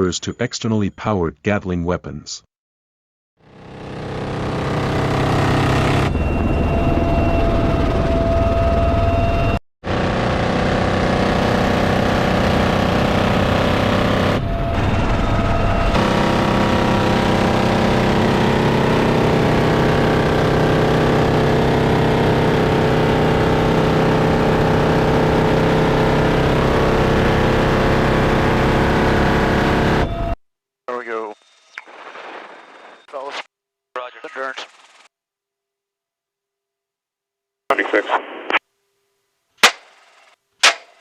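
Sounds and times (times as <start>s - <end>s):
loud engine drone: 3.4s - 30.4s.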